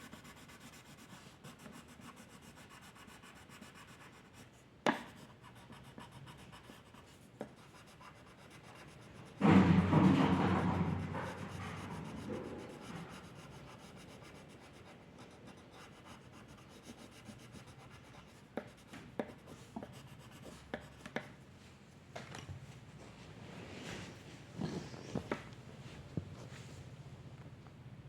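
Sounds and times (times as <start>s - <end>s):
pen scratching on paper: 0.0s - 4.5s, 5.1s - 9.4s, 10.8s - 21.3s.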